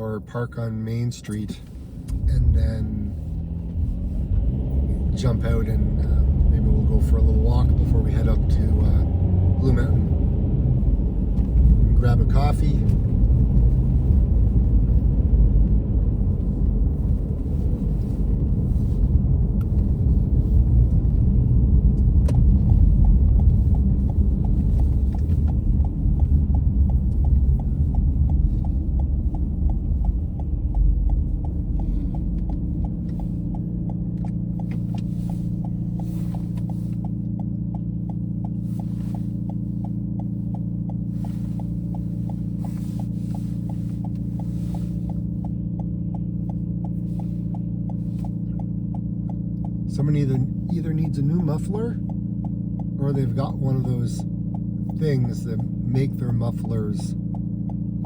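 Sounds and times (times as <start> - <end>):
car road rumble: 0.0 - 58.0
engine idling drone: 4.9 - 58.0
even ticking: 19.2 - 58.0.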